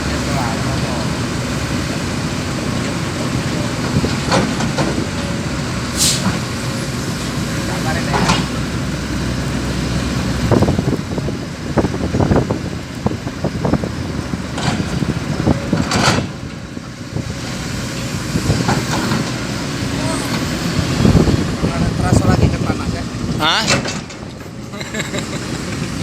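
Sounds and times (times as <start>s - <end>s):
truck engine running: 0.0s - 26.0s.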